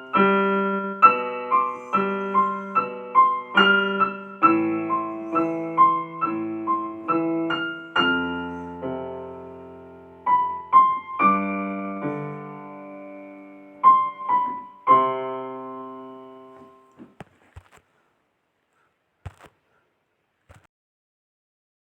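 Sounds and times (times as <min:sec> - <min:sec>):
solo piano: 0:00.0 - 0:17.0.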